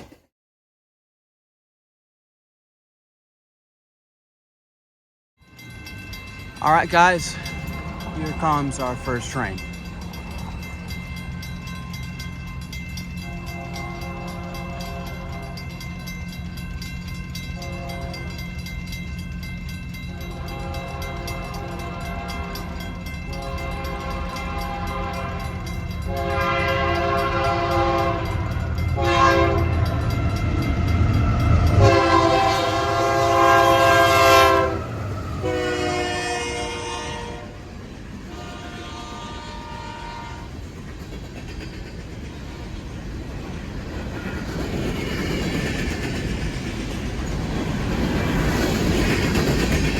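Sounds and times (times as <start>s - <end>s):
train air horn blasts: 13.2s - 15.6s, 17.6s - 18.3s, 20.1s - 22.6s, 23.3s - 28.4s, 29.0s - 29.8s, 31.7s - 37.6s, 38.3s - 40.5s.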